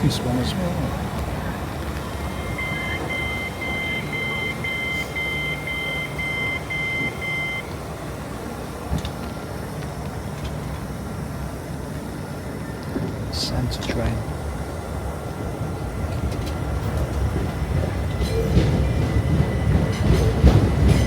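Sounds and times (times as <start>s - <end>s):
low hum of train: 0.0s - 21.0s
train door warning beeps: 1.6s - 9.1s, 16.0s - 21.0s.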